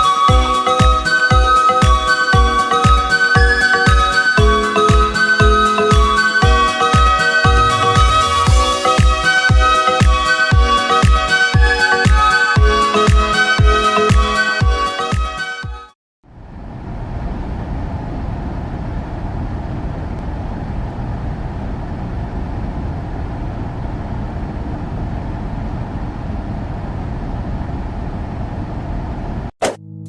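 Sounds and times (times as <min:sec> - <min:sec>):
dance music: 0:01.8 - 0:13.6
low rushing noise: 0:06.4 - 0:09.0, 0:16.3 - 0:29.6.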